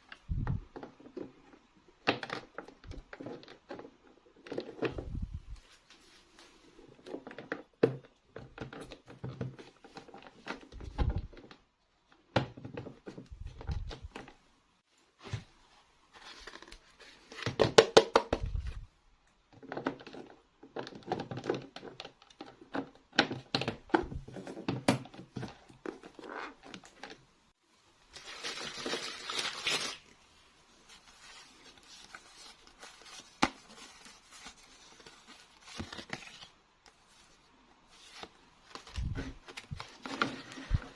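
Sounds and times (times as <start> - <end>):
packaging crinkling and tearing: 28.1 - 30.2.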